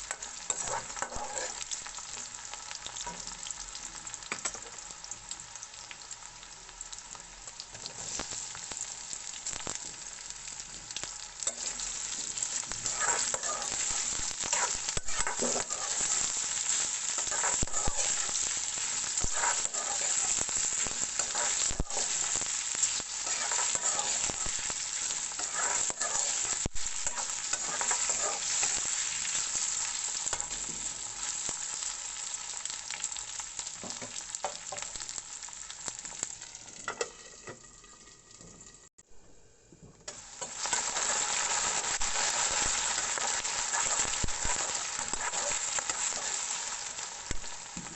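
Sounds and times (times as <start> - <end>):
spatula scraping a pan: 0.0 - 1.8, 11.4 - 29.6, 40.4 - 46.6
food sizzling in hot oil: 0.0 - 39.0, 40.1 - 47.9.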